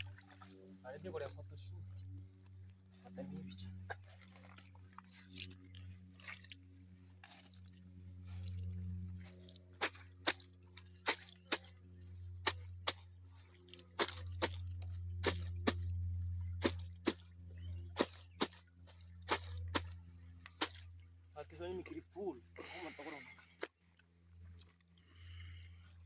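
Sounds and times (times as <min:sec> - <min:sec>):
steady low hum: 0:00.0 - 0:26.0
wet clicks and splats: 0:02.4 - 0:20.9.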